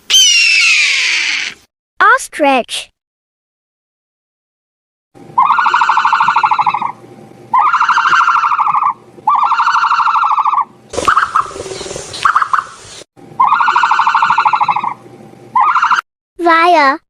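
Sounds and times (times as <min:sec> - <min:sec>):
ostrich buzzy call: 0:05.3 - 0:12.7.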